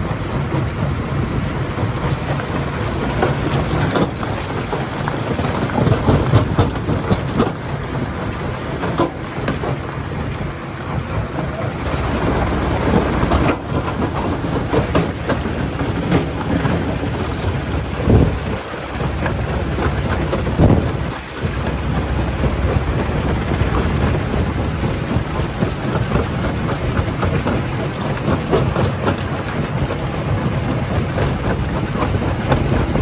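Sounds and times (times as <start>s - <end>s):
stone crusher rumbling: 0.0s - 33.0s.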